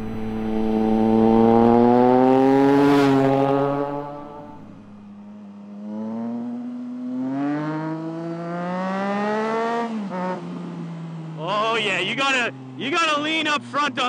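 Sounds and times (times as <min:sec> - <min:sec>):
motorcycle engine accelerating: 0:00.0 - 0:12.8.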